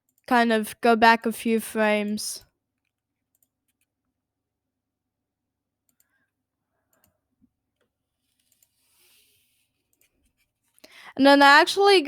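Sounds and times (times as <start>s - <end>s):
computer mouse clicks: 3.3s - 3.9s, 7.8s - 9.0s, 9.8s - 10.2s.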